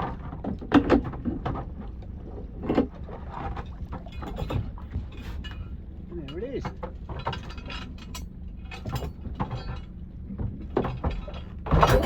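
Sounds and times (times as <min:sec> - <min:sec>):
boat low rumble: 0:00.0 - 0:12.0.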